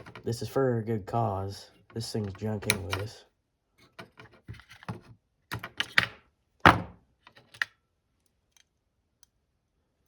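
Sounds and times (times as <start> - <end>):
cutters snipping wires: 2.2 - 3.1.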